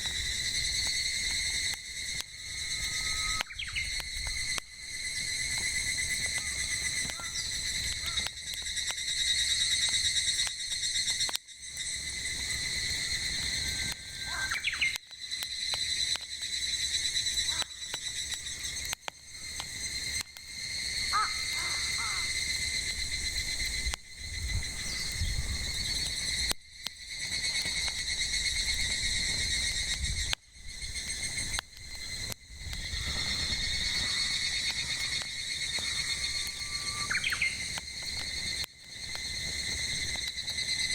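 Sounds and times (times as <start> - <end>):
cicadas chorus: 0.0 - 40.9
firewood popping: 0.0 - 40.9
bird calls: 2.9 - 4.0, 6.4 - 8.3, 14.2 - 15.0, 21.1 - 22.3, 33.0 - 37.7.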